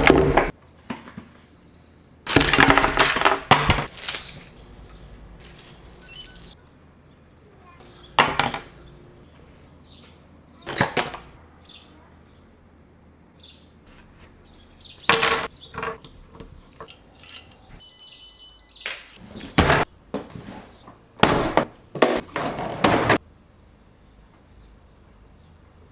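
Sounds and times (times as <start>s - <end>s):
high electronic tones: 6.0s - 6.6s, 17.8s - 19.2s.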